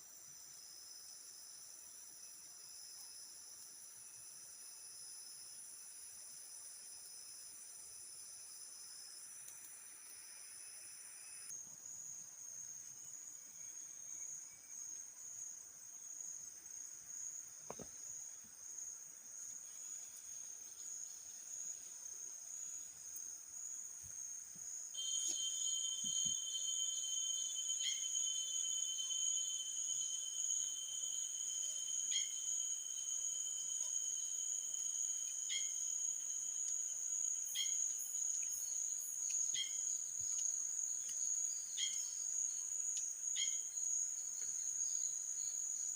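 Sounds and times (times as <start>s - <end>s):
lower insect trill: 0.0s - 45.9s
insects trilling high: 24.9s - 43.9s.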